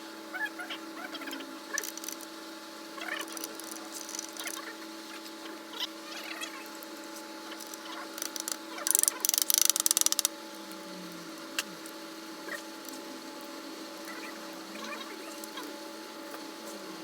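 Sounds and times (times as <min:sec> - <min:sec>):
steady background hum: 0:00.0 - 0:17.0
ratchet wrench clicking: 0:07.6 - 0:10.3.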